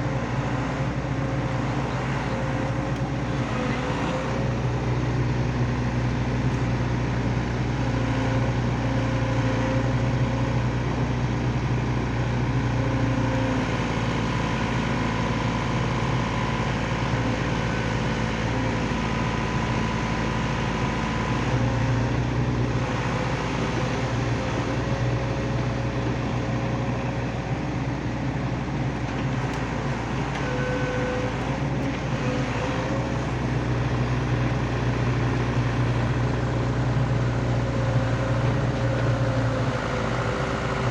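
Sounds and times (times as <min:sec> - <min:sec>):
excavator diesel engine running: 0:00.0 - 0:40.9
hydraulic whining: 0:29.0 - 0:40.9.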